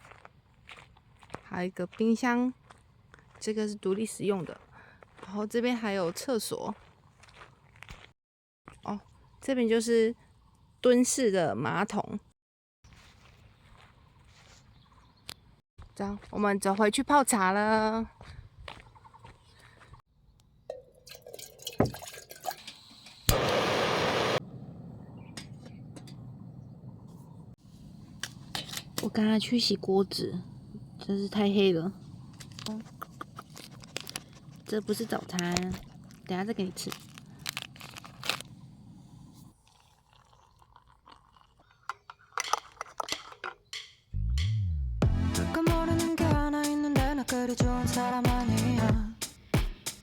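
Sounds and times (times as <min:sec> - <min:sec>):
water pouring and splashing: 0:20.8 - 0:24.2
crisp food crunching and chewing: 0:32.4 - 0:38.7, 0:39.5 - 0:43.4
objects knocking and clinking: 0:41.9 - 0:44.0.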